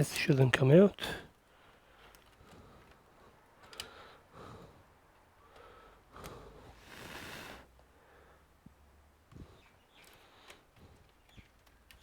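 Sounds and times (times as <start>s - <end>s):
faint clicks and handling noises: 1.3s - 4.2s, 8.7s - 12.0s
man exhaling sharply: 6.7s - 7.7s.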